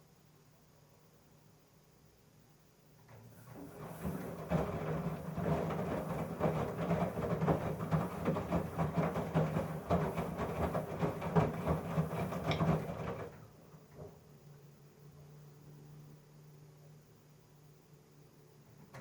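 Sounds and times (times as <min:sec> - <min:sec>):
washing machine drum rattling: 0:03.4 - 0:14.2.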